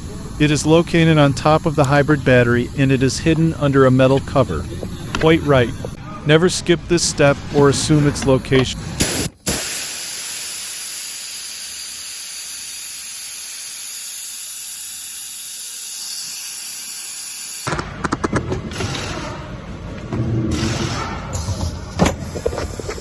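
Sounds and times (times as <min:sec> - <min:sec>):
steady hiss: 0:00.0 - 0:17.7.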